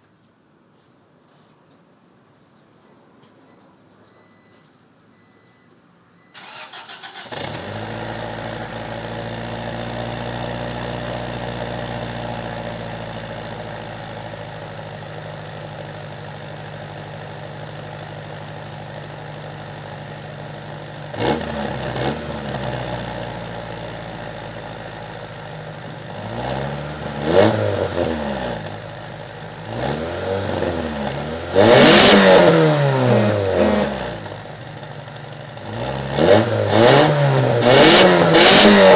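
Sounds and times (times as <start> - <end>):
car engine cold start and idling: 6.2 - 38.9
car engine revving: 6.4 - 13.6, 21.0 - 38.9.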